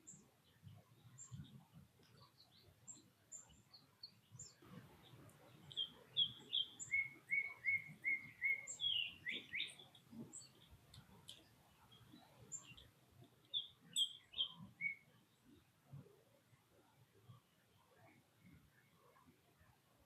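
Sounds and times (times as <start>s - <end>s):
birds chirping: 0.0s - 15.2s
songbird whistling: 5.7s - 9.8s, 13.5s - 15.1s.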